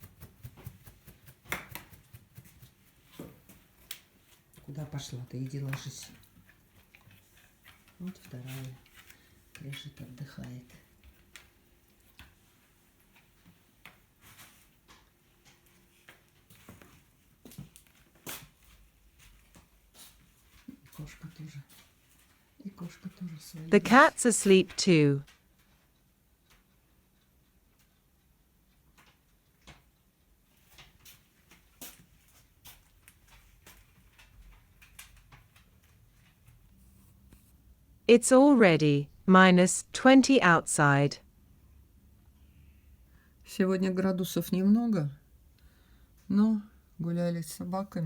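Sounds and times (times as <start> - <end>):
faint clicks and rustles: 5.4 - 23.6, 25.3 - 37.5.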